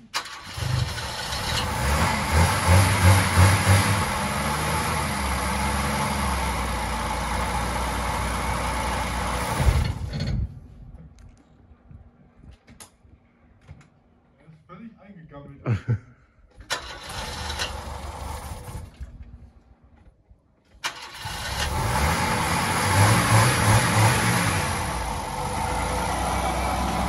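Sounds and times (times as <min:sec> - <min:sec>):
car engine revving: 0:00.2 - 0:10.0, 0:20.9 - 0:27.0.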